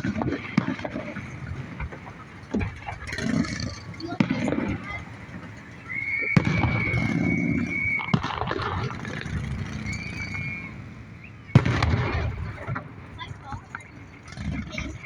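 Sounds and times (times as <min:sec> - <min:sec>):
firework bangs: 0:00.0 - 0:15.0
loud firework crack: 0:00.0 - 0:15.0
firework whistle: 0:05.7 - 0:12.5.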